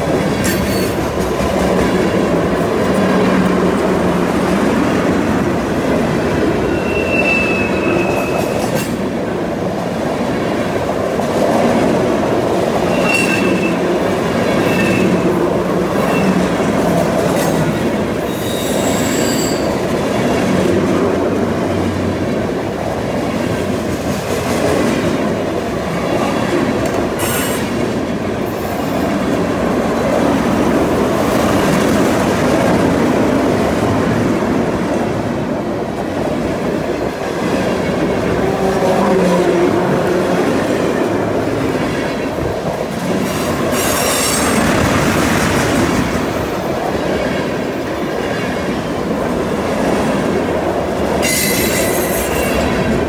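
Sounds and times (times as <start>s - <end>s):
train wheels rumbling on rails: 0.0s - 53.0s
high-pitched wheel squeals: 6.7s - 8.6s, 12.9s - 13.8s, 18.3s - 19.8s.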